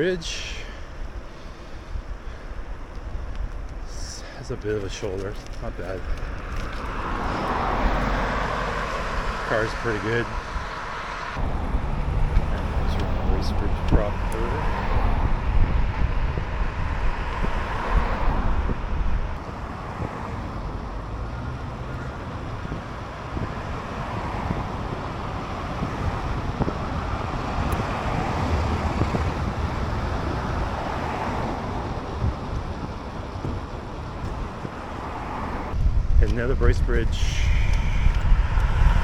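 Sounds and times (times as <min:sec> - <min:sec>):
road traffic passing: 0:00.0 - 0:39.0
wind buffeting microphone: 0:00.0 - 0:39.0.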